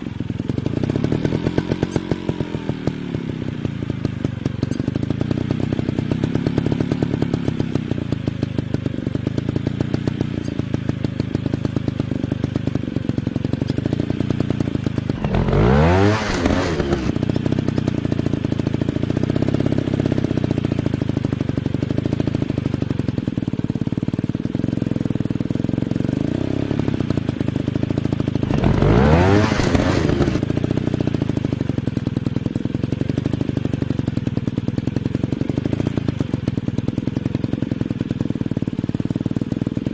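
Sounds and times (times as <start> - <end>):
dirt bike engine revving: 15.1 - 17.4, 28.4 - 30.6.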